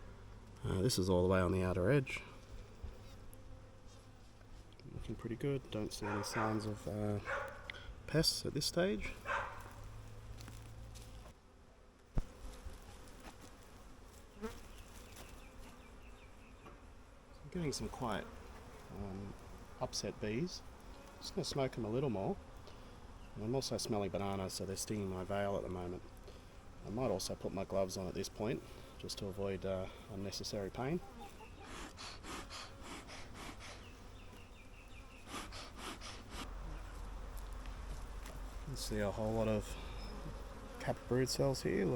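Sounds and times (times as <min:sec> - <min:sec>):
bees buzzing: 0:09.1 - 0:41.9.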